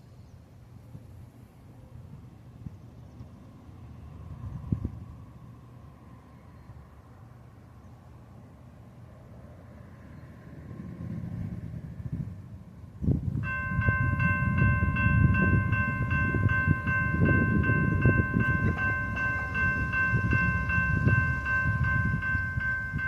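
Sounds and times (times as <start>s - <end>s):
train wheels rumbling: 13.4s - 23.0s.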